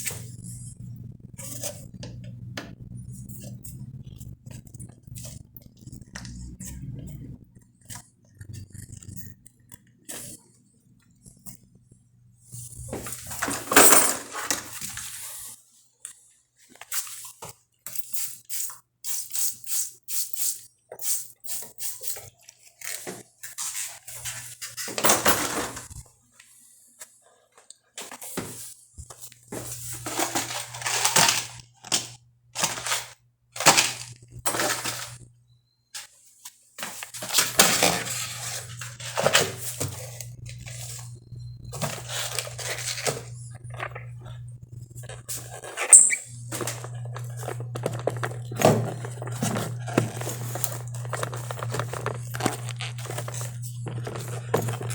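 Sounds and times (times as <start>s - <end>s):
low steady hum: 0.0s - 14.8s, 37.6s - 54.9s.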